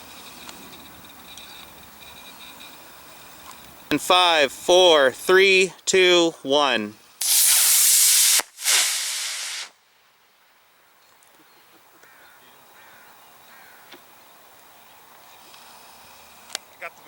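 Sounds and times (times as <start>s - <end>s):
model rocket rushing hiss: 7.2s - 9.8s.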